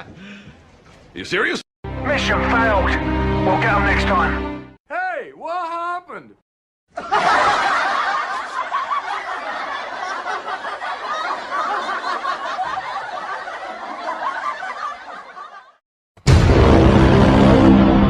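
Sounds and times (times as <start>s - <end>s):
audience laughing: 6.9s - 15.8s.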